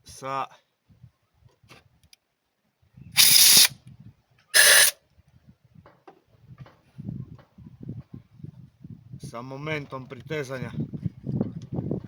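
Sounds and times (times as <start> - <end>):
ratchet wrench clicking: 3.2 - 3.7, 4.6 - 5.0.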